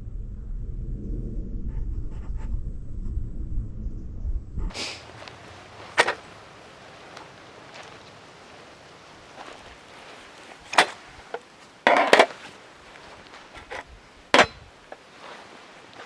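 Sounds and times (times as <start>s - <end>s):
firewood being chopped: 4.7s - 8.2s, 9.2s - 16.0s
wood cracking: 4.7s - 16.0s.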